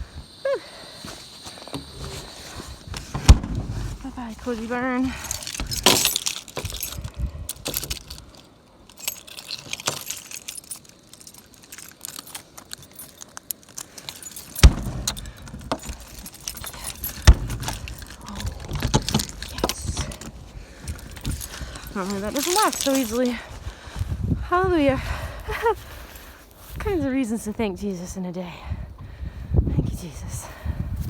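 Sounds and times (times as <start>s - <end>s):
small metal objects jingling: 4.0s - 23.5s.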